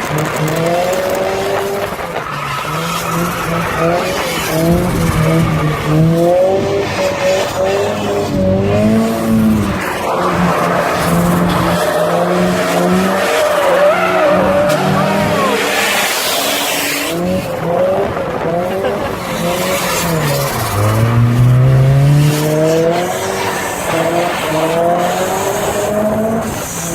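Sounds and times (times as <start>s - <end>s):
car engine revving hard: 0.0s - 26.9s
tyres squealing: 8.9s - 17.2s.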